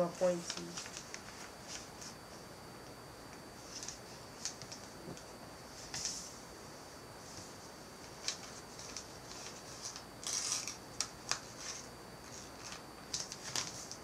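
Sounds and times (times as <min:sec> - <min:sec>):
paper folding and rustling: 0:00.2 - 0:02.2, 0:03.6 - 0:05.2, 0:08.0 - 0:14.0.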